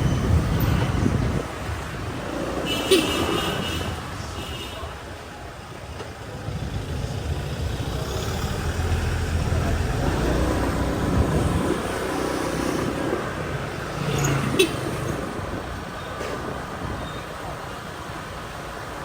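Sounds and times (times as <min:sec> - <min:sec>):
road noise: 0:00.0 - 0:19.0
motorbike engine: 0:06.0 - 0:16.6.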